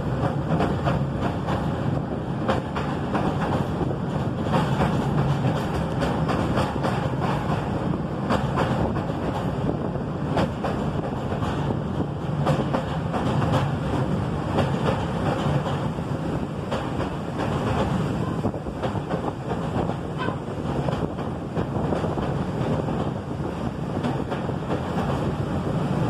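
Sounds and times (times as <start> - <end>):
train wheels clacking: 0.0 - 26.0
train wheels rumbling on rails: 0.0 - 26.0
wind buffeting microphone: 0.0 - 26.0.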